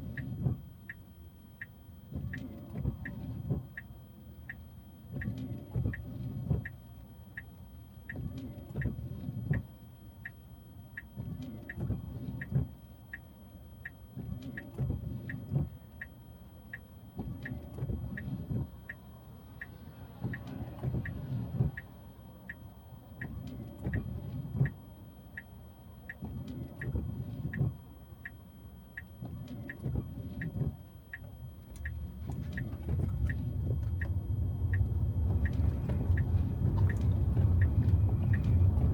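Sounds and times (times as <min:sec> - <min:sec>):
car road rumble: 0:17.2 - 0:28.3, 0:29.0 - 0:38.9
steady ticking: 0:31.8 - 0:38.9.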